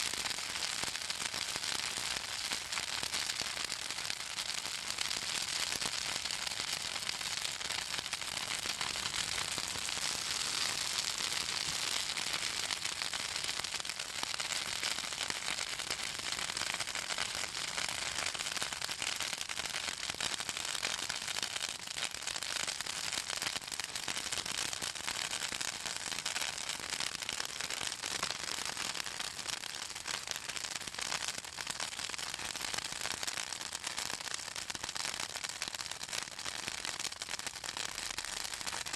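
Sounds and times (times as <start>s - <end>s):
bonfire crackling and popping: 0.0s - 38.9s
fire hissing: 8.1s - 13.3s.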